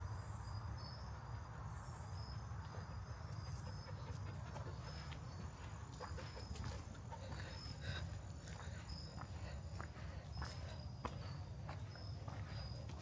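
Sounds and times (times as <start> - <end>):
footsteps on forest floor: 4.5 - 13.0.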